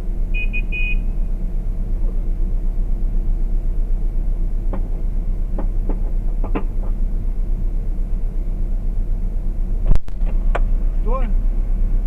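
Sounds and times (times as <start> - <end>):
car engine and road noise: 0.0 - 12.0
short irregular knocks: 4.7 - 7.0.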